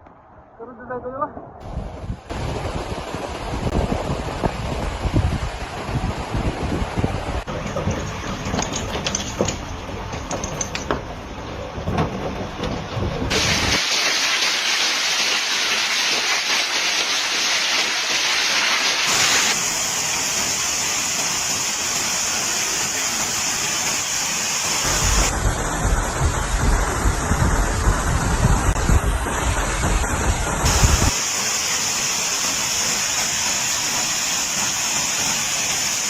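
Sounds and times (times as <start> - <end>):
wind buffeting microphone: 1.4 - 13.8, 24.8 - 31.2
loud steady rushing hiss: 13.3 - 36.0.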